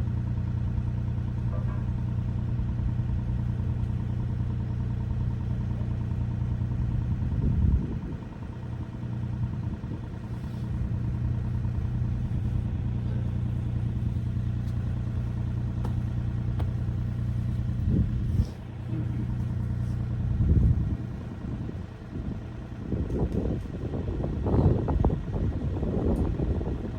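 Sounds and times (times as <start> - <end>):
excavator diesel engine running: 0.0 - 26.9.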